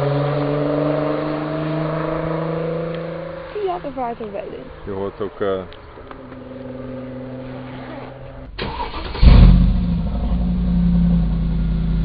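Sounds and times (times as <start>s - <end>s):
car engine starting and idling: 0.0s - 12.0s
starter motor cranking: 8.6s - 9.4s.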